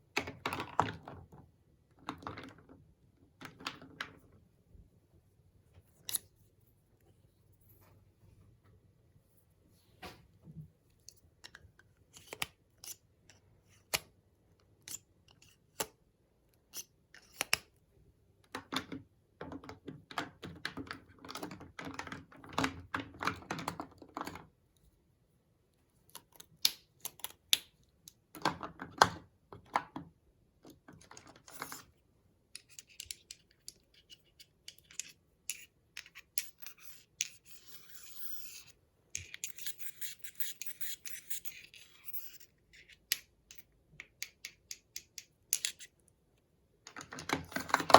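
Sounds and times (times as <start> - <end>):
scratching and rubbing: 36.4 - 43.0.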